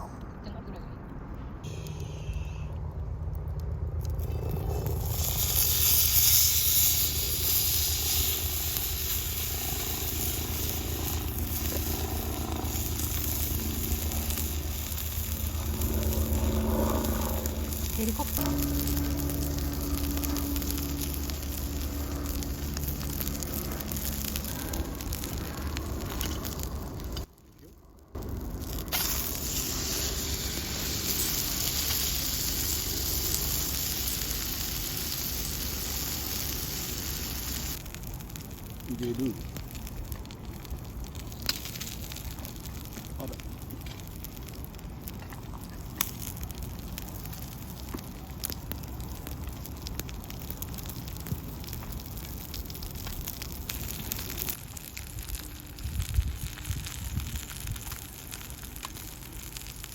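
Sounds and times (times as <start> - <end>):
low rumble: 0.0 - 59.9
food sizzling in hot fat: 4.1 - 27.3, 28.2 - 59.9
steak sizzling in a pan: 4.8 - 12.0, 28.9 - 37.8.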